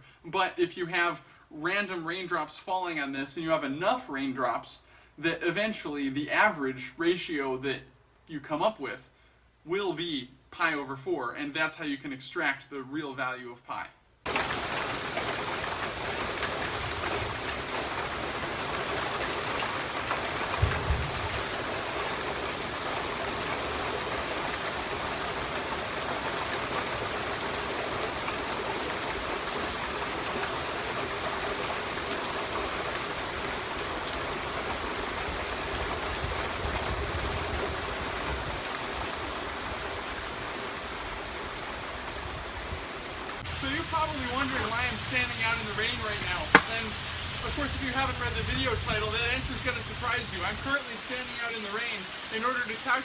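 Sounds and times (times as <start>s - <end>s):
rain on paved patio: 14.2s - 53.0s
low thump: 20.6s - 21.4s.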